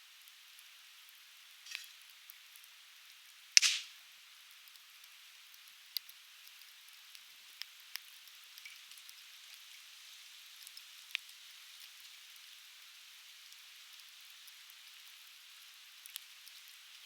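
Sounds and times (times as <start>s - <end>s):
firewood crackling: 0.5s - 4.1s
sharp pops from fire: 1.7s - 2.0s, 3.6s - 4.0s
fire hissing: 3.6s - 4.0s.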